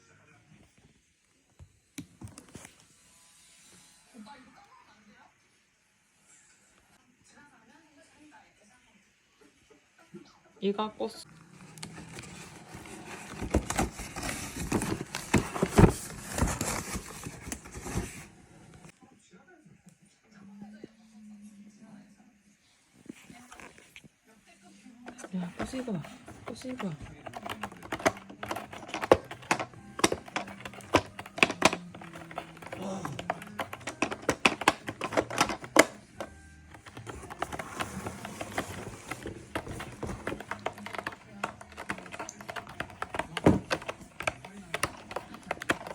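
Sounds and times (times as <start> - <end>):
rustling: 11.5 - 18.9
plastic cat toy clicking: 25.1 - 45.9.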